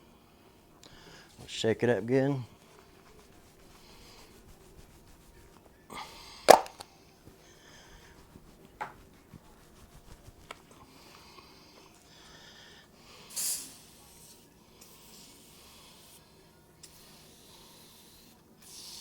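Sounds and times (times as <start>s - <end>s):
aerosol can clicks: 6.5s - 6.9s
rustling: 7.8s - 10.9s
aerosol spray hiss: 13.2s - 19.0s.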